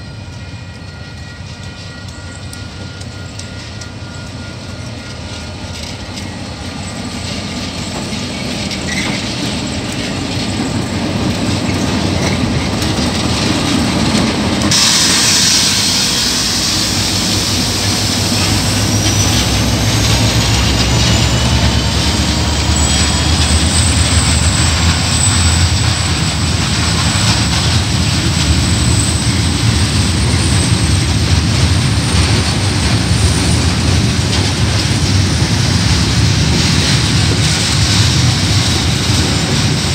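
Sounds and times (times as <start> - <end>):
diesel locomotive passing: 0.0 - 39.9
train wheels clacking over rail joints: 0.3 - 39.9
high thin wheel squeal: 7.9 - 10.9, 14.7 - 27.8.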